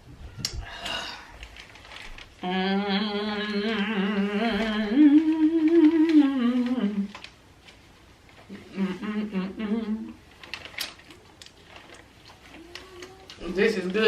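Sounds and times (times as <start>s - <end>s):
woman humming: 2.4s - 7.1s, 8.5s - 10.2s
faint eating clicks: 10.4s - 14.0s.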